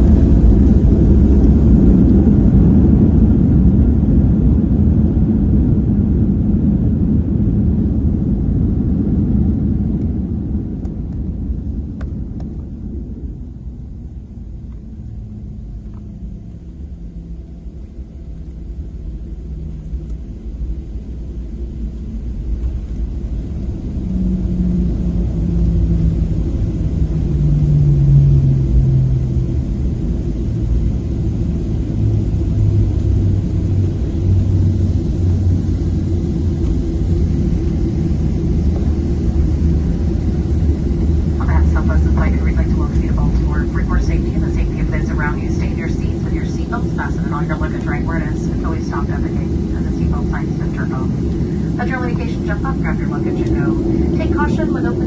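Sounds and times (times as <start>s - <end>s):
airplane cabin engine rumble: 0.0s - 55.0s
low hum dropping in pitch: 0.0s - 55.0s.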